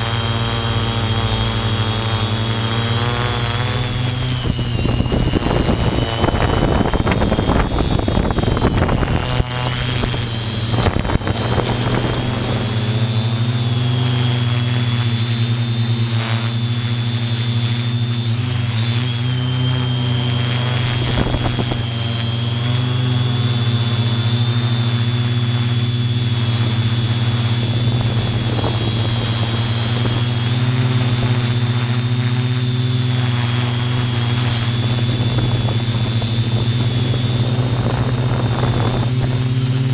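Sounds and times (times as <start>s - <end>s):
drone motors and propellers: 0.0s - 39.9s
rush of noise: 3.8s - 14.2s, 19.0s - 32.1s, 33.4s - 39.9s.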